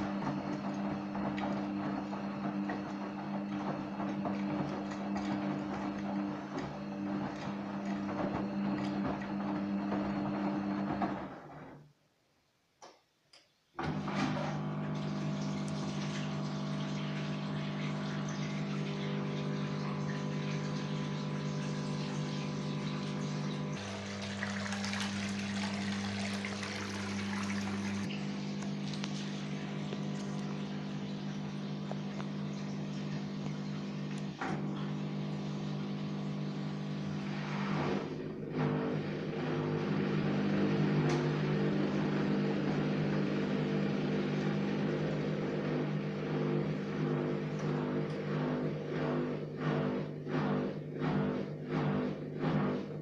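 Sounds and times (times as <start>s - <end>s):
washing machine hum: 0.0s - 12.3s, 13.6s - 53.0s
water flowing: 14.5s - 36.4s.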